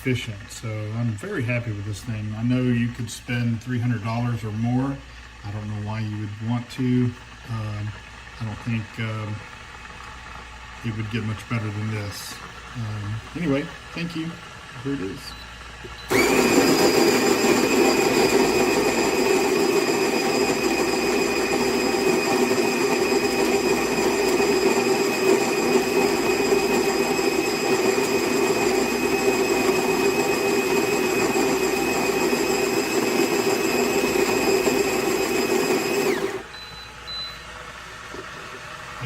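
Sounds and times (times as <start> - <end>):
coffee grinder grinding beans: 16.1 - 36.5.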